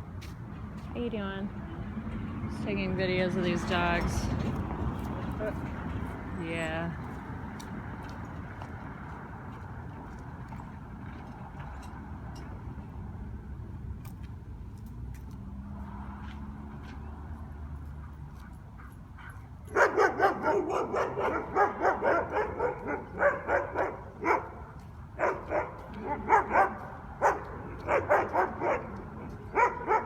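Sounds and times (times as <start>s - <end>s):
street traffic rumble: 0.0s - 30.0s
dogs barking rapidly: 18.8s - 30.0s.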